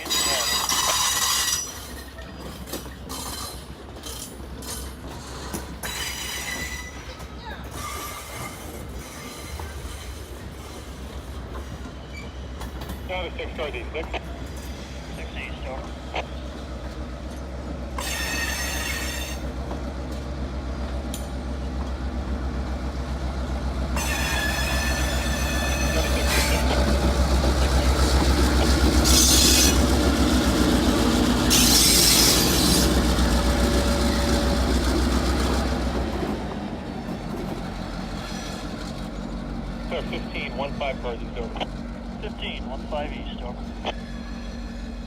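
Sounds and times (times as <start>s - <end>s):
train wheels squealing: 0.0s - 12.9s, 18.0s - 19.5s, 24.0s - 27.1s, 28.9s - 30.3s, 31.3s - 34.8s, 38.2s - 39.4s, 44.0s - 45.0s
diesel locomotive drone: 0.0s - 45.0s.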